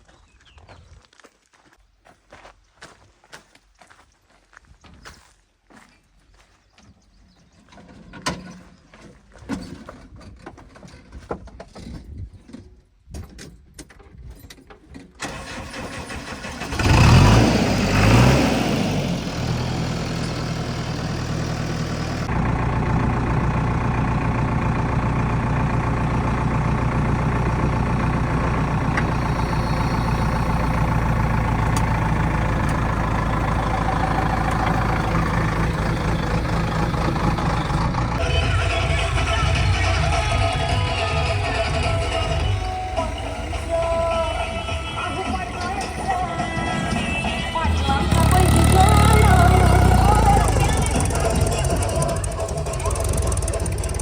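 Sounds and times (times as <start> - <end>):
diesel engine starting and revving: 15.2 - 54.0.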